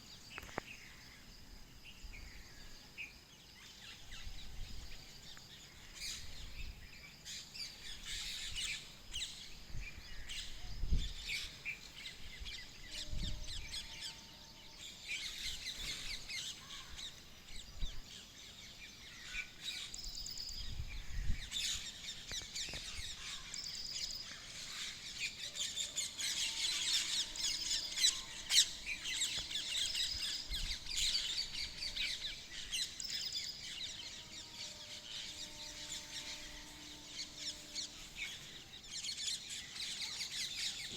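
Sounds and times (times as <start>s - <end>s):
birds chirping: 18.7s - 40.9s.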